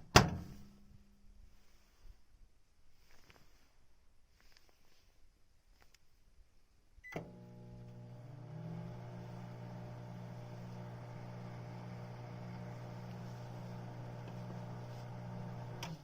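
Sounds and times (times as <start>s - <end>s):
microwave beep: 7.0s - 7.4s
microwave electrical hum: 7.0s - 16.0s
microwave click: 7.1s - 16.0s.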